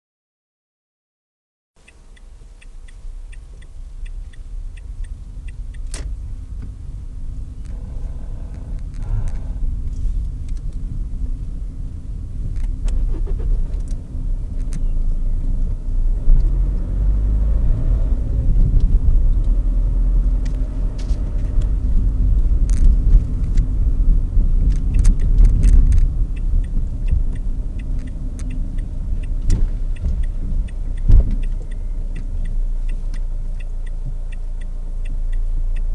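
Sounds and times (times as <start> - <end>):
diesel engine rumble: 1.8 - 35.9
odd noise from engine bay: 12.5 - 14.0.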